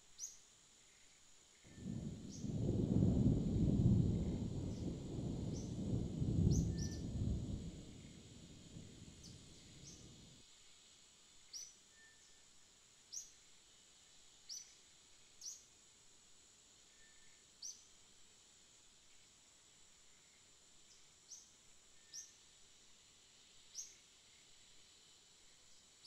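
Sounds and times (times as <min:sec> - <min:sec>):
faint bird chirps: 0:00.0 - 0:02.6, 0:04.2 - 0:10.2, 0:11.5 - 0:13.4, 0:14.5 - 0:15.7, 0:16.8 - 0:17.9, 0:20.0 - 0:22.4
steady high hiss: 0:00.0 - 0:26.0
distant thunder rumble: 0:01.7 - 0:10.3.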